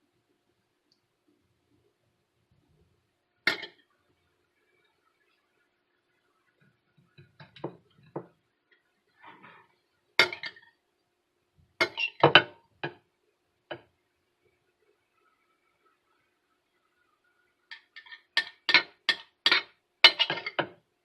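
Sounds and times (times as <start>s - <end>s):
utensil clinking against dishes: 3.5s - 3.8s, 10.2s - 10.6s, 11.8s - 12.6s, 17.7s - 20.8s.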